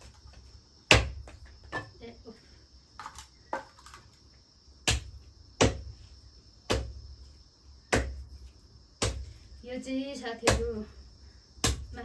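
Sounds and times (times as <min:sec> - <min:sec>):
crickets chirping: 0:00.0 - 0:12.0
knife chopping meat on a board: 0:04.8 - 0:05.9, 0:06.7 - 0:07.0, 0:07.9 - 0:08.3, 0:09.0 - 0:09.3.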